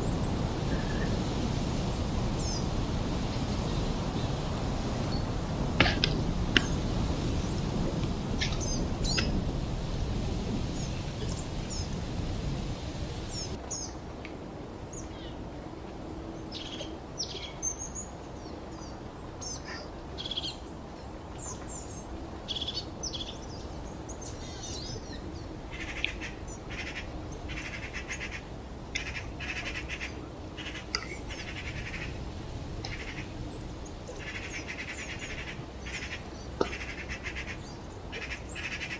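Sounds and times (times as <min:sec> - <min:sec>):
low rushing background: 0:00.0 - 0:13.6
songbirds chirping: 0:00.0 - 0:14.0, 0:16.3 - 0:38.9.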